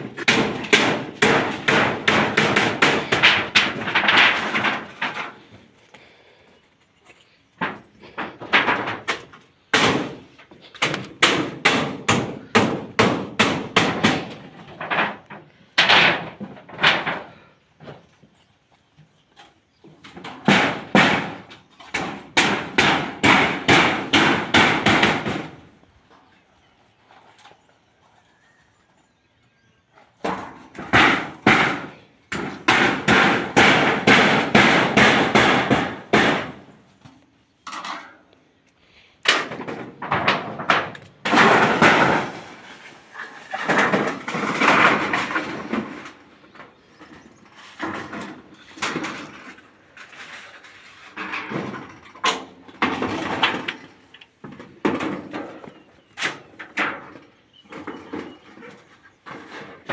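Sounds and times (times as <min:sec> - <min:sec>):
hammer blows on metal roofing: 0:00.0 - 0:06.5, 0:07.1 - 0:18.4, 0:19.3 - 0:27.6, 0:30.0 - 0:38.2, 0:39.2 - 0:59.9.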